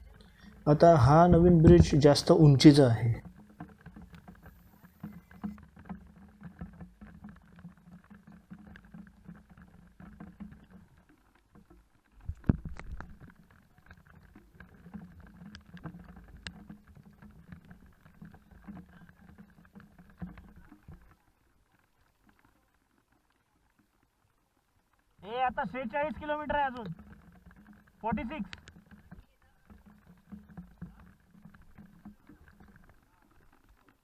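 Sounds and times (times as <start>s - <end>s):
small taps: 26.7s - 34.0s.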